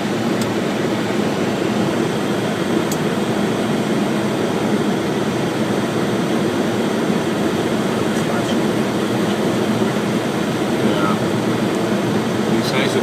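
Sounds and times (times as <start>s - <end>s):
rushing airflow in aircraft cockpit: 0.0s - 13.0s.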